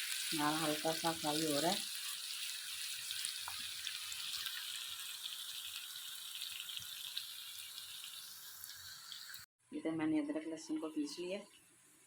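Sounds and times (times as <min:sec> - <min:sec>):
onions sizzling in a pan: 0:00.0 - 0:09.5.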